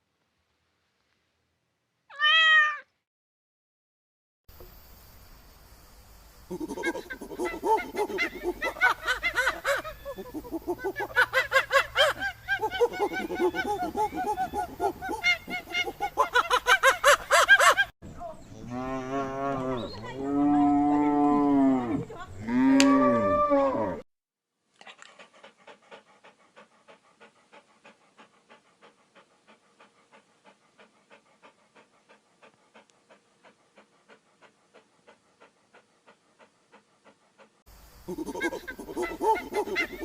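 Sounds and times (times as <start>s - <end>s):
cow mooing: 18.6s - 24.0s.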